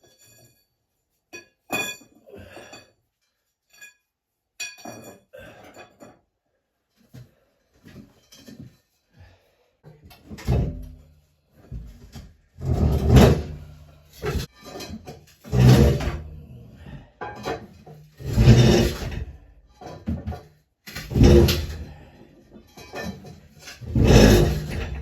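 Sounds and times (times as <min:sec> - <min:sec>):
heavy machine scraping across floor: 0:12.6 - 0:16.6, 0:18.2 - 0:19.4, 0:20.9 - 0:22.2, 0:22.8 - 0:25.0.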